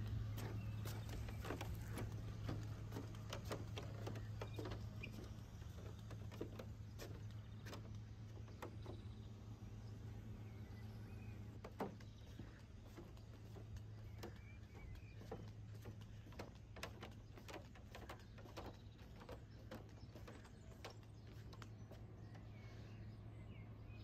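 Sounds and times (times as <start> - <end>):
footsteps on wooden boards: 0.0 - 9.7, 11.4 - 22.8
steady low hum: 0.0 - 24.0.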